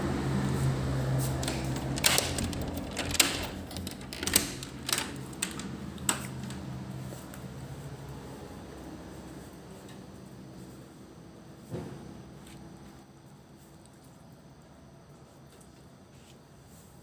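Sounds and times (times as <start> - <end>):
sharp clicks and clattering knocks: 1.4 - 6.6.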